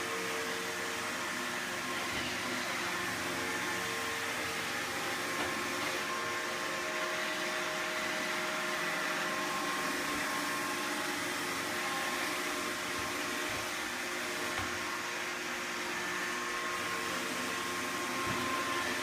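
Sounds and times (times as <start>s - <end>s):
robot vacuum cleaner whirring: 0.0s - 19.0s.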